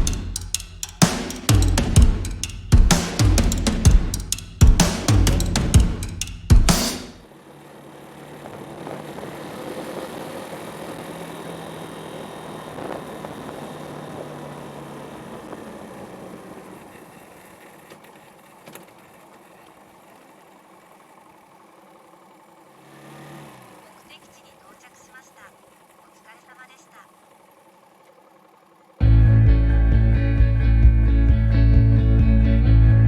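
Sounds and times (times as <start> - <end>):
motorcycle engine running: 0.0 - 22.8, 23.6 - 33.0
road and wind noise: 7.2 - 19.2.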